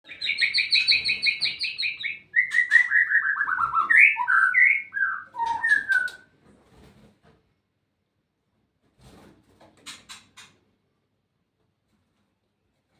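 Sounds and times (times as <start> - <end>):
songbird singing: 0.0 - 6.2.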